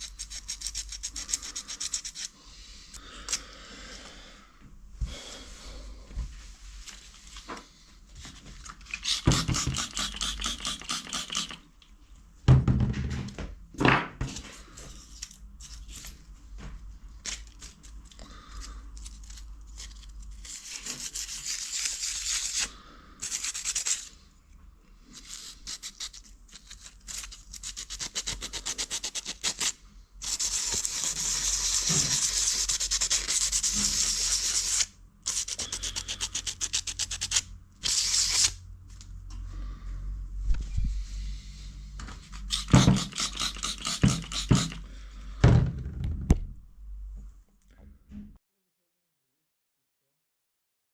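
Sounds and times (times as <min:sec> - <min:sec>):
sandpaper scouring metal: 0:09.0 - 0:11.6, 0:25.2 - 0:38.6, 0:42.5 - 0:44.8.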